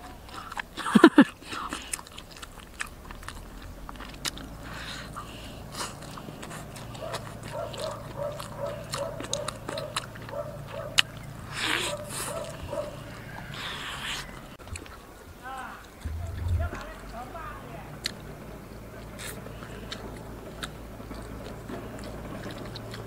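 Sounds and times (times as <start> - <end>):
wet chewing mouth sounds: 0.0 - 18.3, 19.0 - 23.0
bone crunching clicks: 1.3 - 5.2, 5.8 - 11.3.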